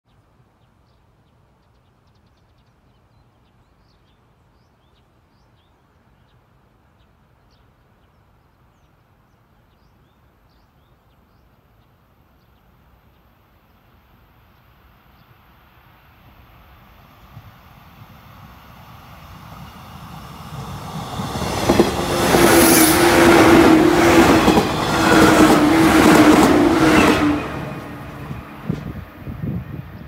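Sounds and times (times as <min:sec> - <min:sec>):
faint hum of approaching train: 0:09.5 - 0:30.0.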